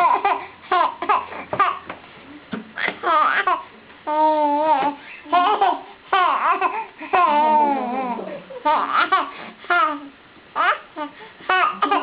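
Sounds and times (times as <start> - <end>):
baby babbling: 2.8 - 12.0.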